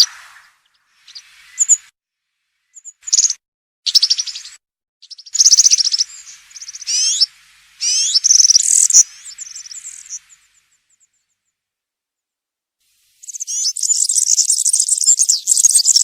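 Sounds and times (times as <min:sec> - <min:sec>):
bird singing jingling song: 0:00.7 - 0:01.9, 0:02.7 - 0:11.4, 0:13.2 - 0:16.0.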